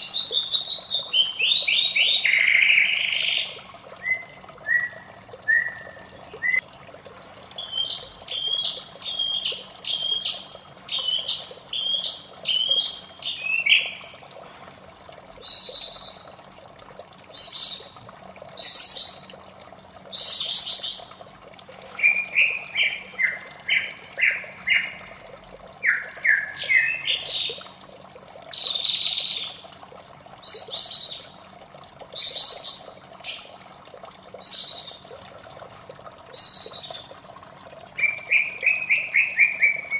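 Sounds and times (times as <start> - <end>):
trickle of running water: 0.0 - 39.9
bird singing whistled notes: 4.0 - 6.6, 36.4 - 37.1.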